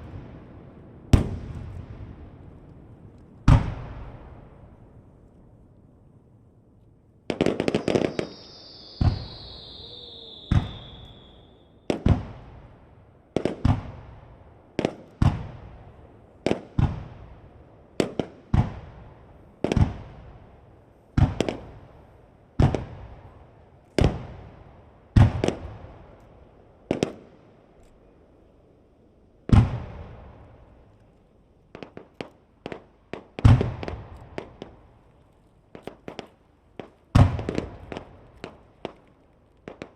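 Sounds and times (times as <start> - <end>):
firework bangs and booms: 0.0 - 5.1, 7.3 - 27.4, 29.4 - 30.8, 31.7 - 35.0, 35.7 - 39.9
sharp firework pops: 1.1 - 4.4, 7.3 - 12.6, 13.4 - 14.1, 14.8 - 15.6, 16.4 - 17.2, 18.0 - 19.0, 19.6 - 20.2, 21.2 - 21.8, 22.6 - 23.3, 25.2 - 27.3, 29.5 - 30.4, 31.7 - 39.9
falling firework whistle: 7.4 - 12.3.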